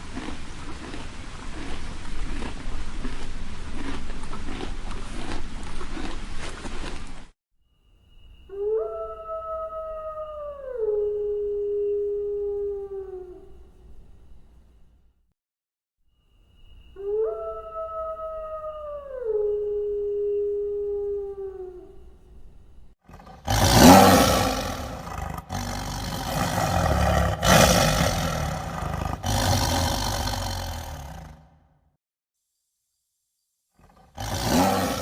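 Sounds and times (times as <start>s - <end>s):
dog howling: 8.5s - 13.5s, 17.0s - 22.0s
rough animal roar: 23.0s - 31.7s, 33.8s - 35.0s.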